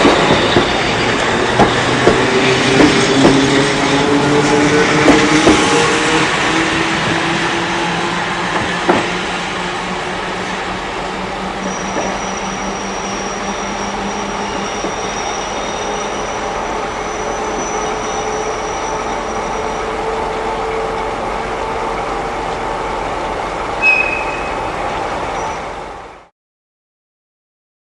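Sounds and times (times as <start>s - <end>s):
electric train rumbling: 0.0s - 26.3s
thin high squeal: 11.6s - 19.8s, 23.8s - 24.7s.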